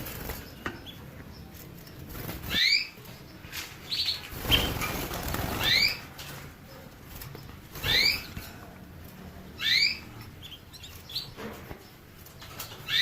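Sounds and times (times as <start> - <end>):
wings flapping: 3.6 - 6.2.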